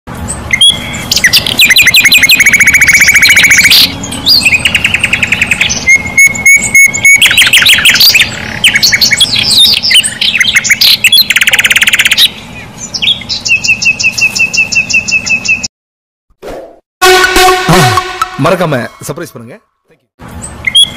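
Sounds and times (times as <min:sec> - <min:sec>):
chirping bird trills: 0:00.2 - 0:15.7, 0:20.4 - 0:20.9
repeated high bird notes: 0:00.5 - 0:12.4, 0:17.0 - 0:19.4
fast buzzing bird trill: 0:00.5 - 0:15.7.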